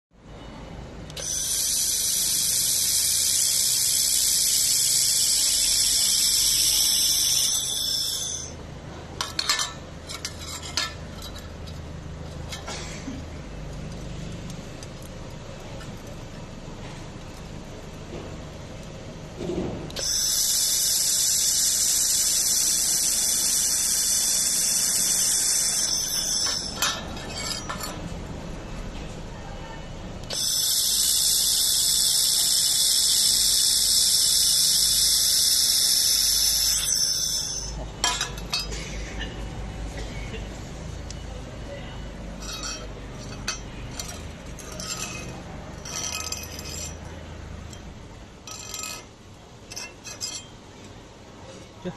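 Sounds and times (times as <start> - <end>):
laser welder hissing: 1.2 - 8.6, 20.0 - 27.0, 30.3 - 37.8
sharp metallic clinks: 20.0 - 28.1, 30.3 - 38.9, 42.4 - 49.1.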